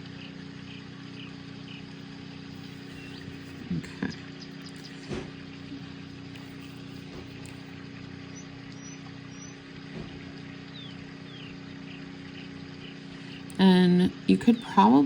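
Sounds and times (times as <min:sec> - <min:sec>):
low background hum: 0:00.0 - 0:15.0
faint high chirps: 0:01.6 - 0:06.9.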